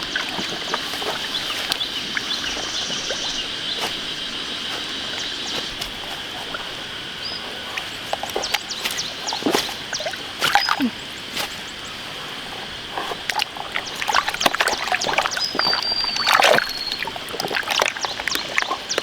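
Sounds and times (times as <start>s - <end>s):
splashing in shallow muddy water: 0.0s - 19.0s
thin whistle: 15.1s - 17.1s.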